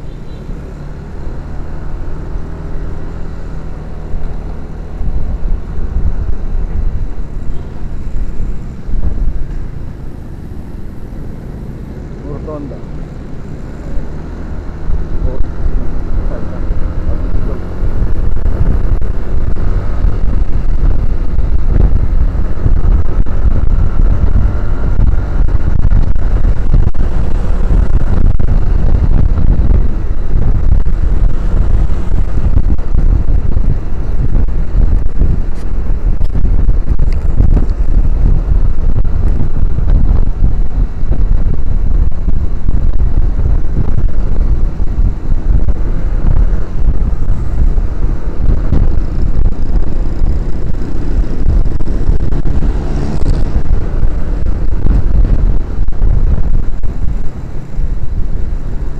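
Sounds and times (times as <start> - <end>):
motorbike engine: 0.0 - 58.9
wind buffeting microphone: 0.9 - 58.9.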